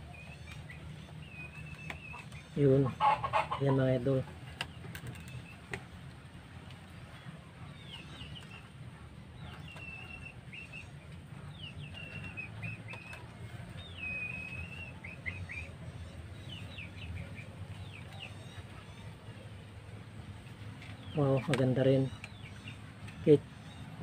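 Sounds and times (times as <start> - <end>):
small bird chirping and singing: 0.0 - 2.9, 7.2 - 19.5, 20.9 - 24.0
low steady rumble: 0.0 - 24.0.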